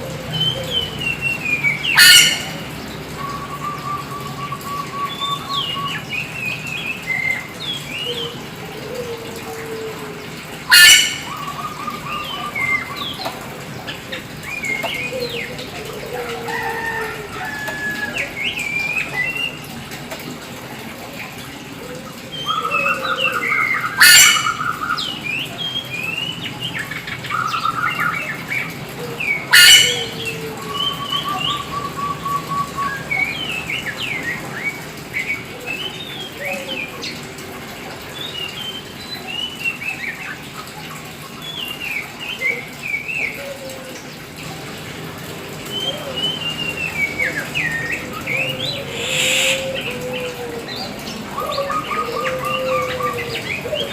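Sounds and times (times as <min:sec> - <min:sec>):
songbird singing whistled phrases: 0:03.2 - 0:07.4, 0:45.8 - 0:49.8
harsh bird bursts: 0:48.9 - 0:49.8.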